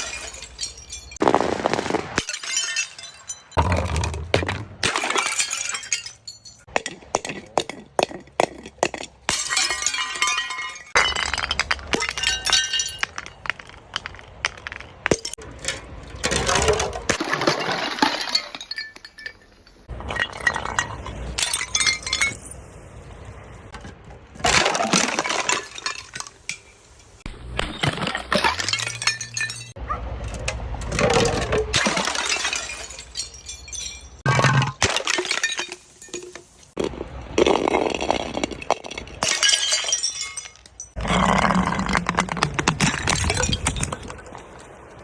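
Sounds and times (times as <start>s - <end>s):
glass shards clinking: 0.0s - 1.2s, 2.2s - 3.6s, 4.8s - 6.8s, 9.3s - 22.6s, 27.8s - 29.8s, 30.9s - 36.7s, 38.3s - 41.0s
glass bottles being crushed: 0.0s - 22.5s, 23.8s - 29.8s, 30.9s - 44.3s.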